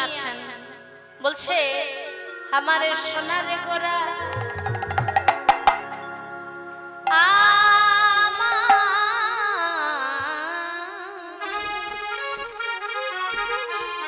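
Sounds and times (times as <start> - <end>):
harmonium: 0.0 - 14.0.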